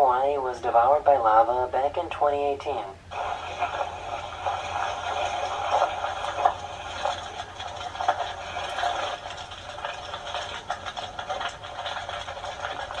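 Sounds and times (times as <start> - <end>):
lava crackling and clinking rocks: 3.1 - 13.0.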